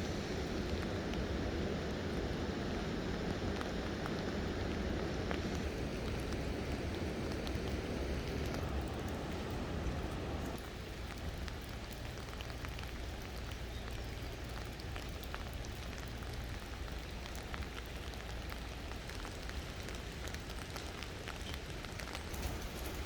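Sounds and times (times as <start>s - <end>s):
steady soft hiss: 0.0s - 23.0s
water drops ticking on wet surfaces: 5.3s - 22.3s.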